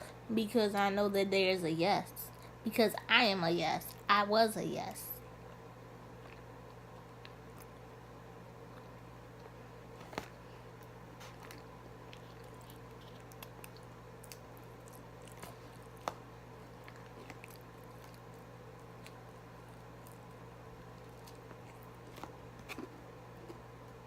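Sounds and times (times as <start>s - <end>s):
electrical hum: 0.0s - 24.0s
chewing crunchy food: 5.4s - 7.8s, 8.5s - 24.0s.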